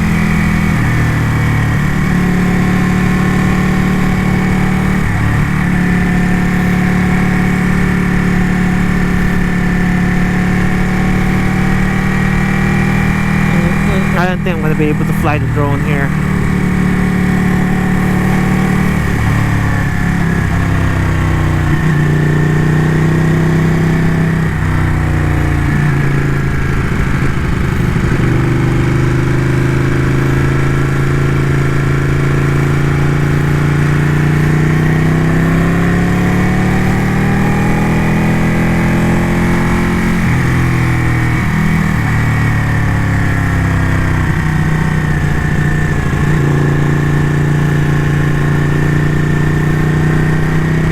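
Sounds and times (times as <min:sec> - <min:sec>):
motorcycle engine shifting gears: 0:00.0 - 0:50.9.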